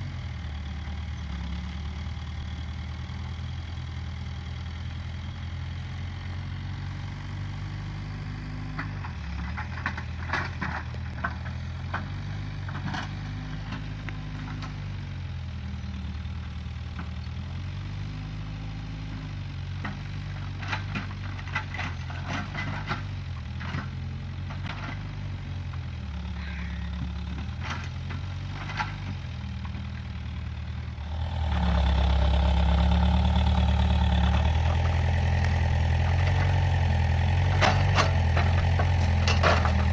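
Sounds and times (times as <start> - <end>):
backhoe engine running: 0.0 - 39.9
sharp cracks and knocks: 37.4 - 39.9.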